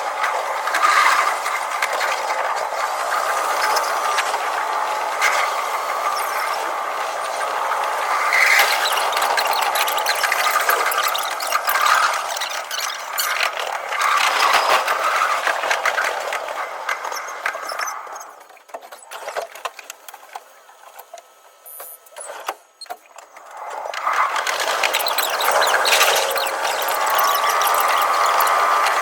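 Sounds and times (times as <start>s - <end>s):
fast rattle of train wheels: 0.1s - 18.5s, 23.4s - 29.0s
scattered clicks: 8.3s - 29.0s.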